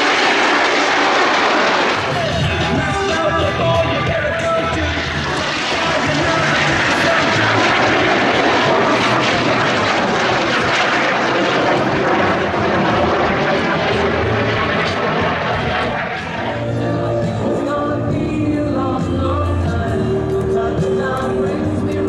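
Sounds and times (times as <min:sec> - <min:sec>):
aircraft engine rushing past: 0:00.0 - 0:22.0
music: 0:02.0 - 0:10.8, 0:11.5 - 0:22.0.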